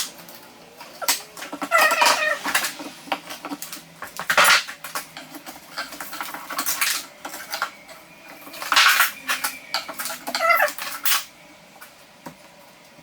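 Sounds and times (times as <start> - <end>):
tools and wood clattering: 0.9 - 11.3.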